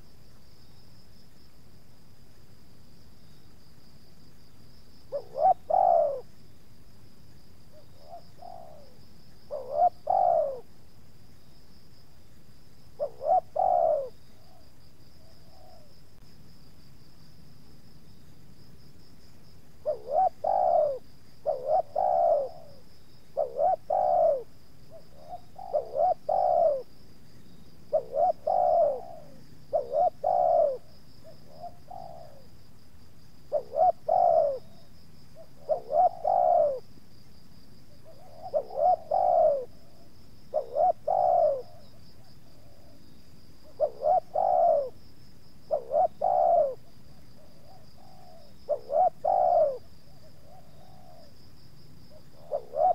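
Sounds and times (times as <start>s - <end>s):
doves cooing: 5.1s - 6.3s, 7.7s - 10.8s, 13.0s - 16.0s, 19.8s - 27.0s, 27.9s - 32.5s, 33.5s - 36.9s, 37.9s - 43.0s, 43.6s - 45.0s, 45.7s - 51.4s, 52.0s - 52.9s.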